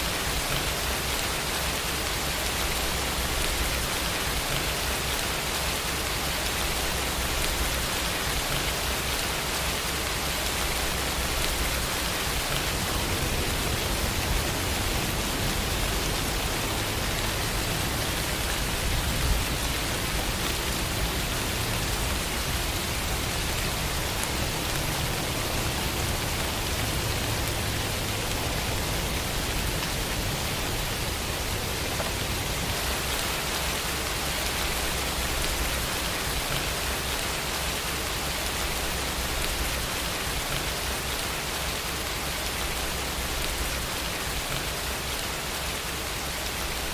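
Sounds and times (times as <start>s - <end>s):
steady rain falling: 0.0s - 46.9s
low rumble: 12.5s - 32.8s.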